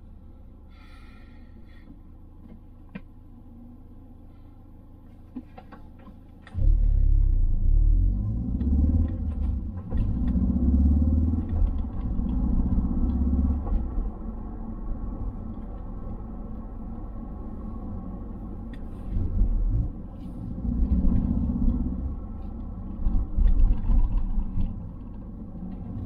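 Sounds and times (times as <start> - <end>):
road rumble: 0.0 - 26.0
car engine accelerating: 6.4 - 26.0.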